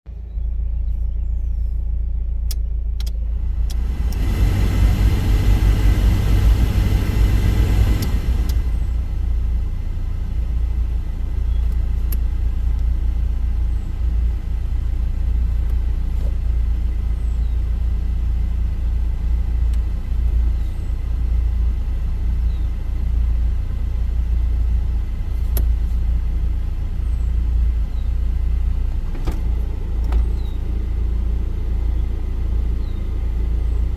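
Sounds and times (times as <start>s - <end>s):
car engine idling: 0.1s - 33.9s
control knob clicks: 2.5s - 4.3s
heater blower air rush: 3.7s - 8.8s.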